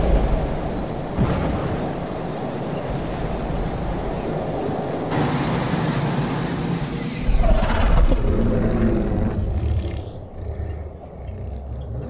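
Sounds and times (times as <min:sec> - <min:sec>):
high-speed train rushing past: 0:00.0 - 0:09.6.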